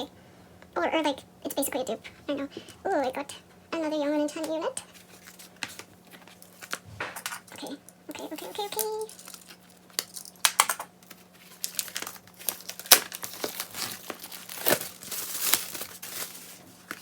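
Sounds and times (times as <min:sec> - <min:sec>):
plastic packaging crinkling: 0:04.9 - 0:07.5, 0:08.2 - 0:17.0.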